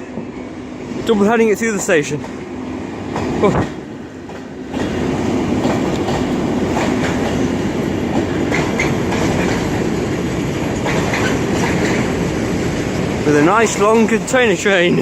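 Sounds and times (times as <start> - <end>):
freight train wheels rumbling: 0.0 - 15.0
wheels clicking on rails: 3.1 - 15.0.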